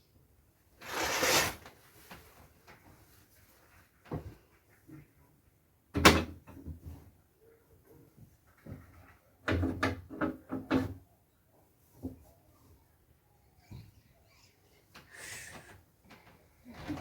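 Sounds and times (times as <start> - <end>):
curtains scraping along rail: 0.8 - 1.7.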